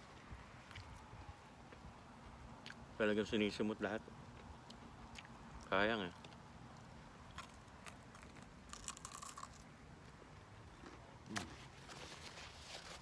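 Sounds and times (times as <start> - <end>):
crunchy chewing: 0.1 - 1.8, 4.2 - 13.0
rustling: 11.3 - 13.0.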